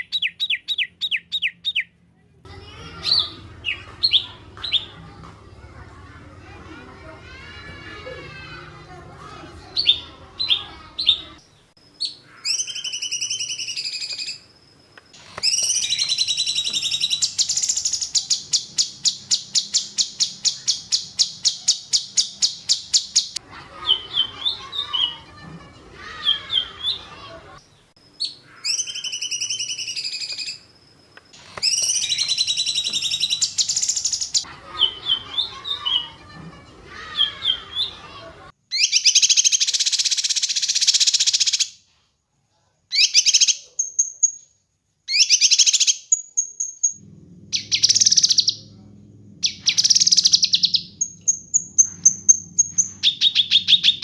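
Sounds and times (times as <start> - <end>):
songbird whistling and trilling: 49.4 - 54.0.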